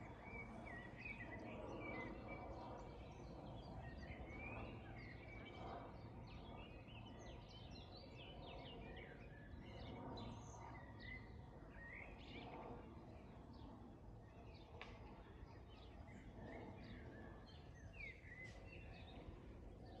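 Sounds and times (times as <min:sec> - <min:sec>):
songbirds chirping and singing: 0:14.6 - 0:20.0.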